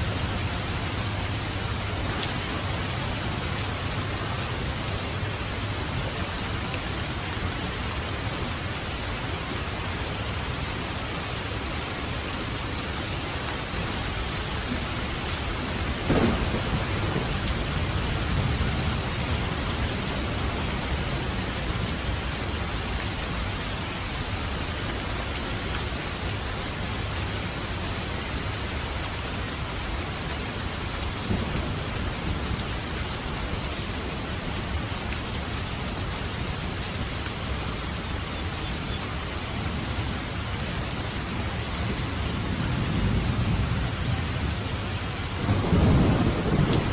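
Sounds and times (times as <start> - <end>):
heavy rain on a roof: 0.0 - 46.9
thunder rumbling: 14.7 - 22.1, 31.2 - 33.6, 41.2 - 46.9.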